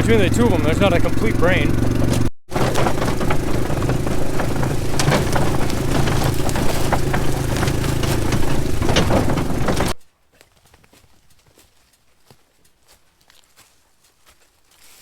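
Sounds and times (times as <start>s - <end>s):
atv engine running: 0.0s - 10.0s
light clicks and knocks: 2.0s - 10.0s.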